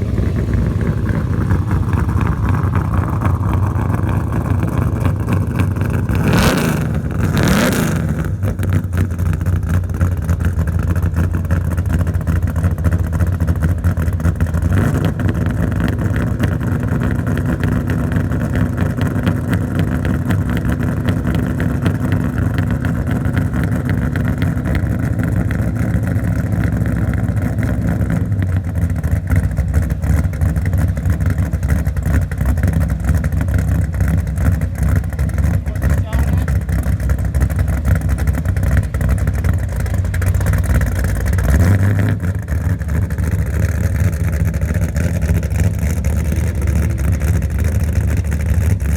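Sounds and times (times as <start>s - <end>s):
engine revving and idling: 0.0s - 48.9s.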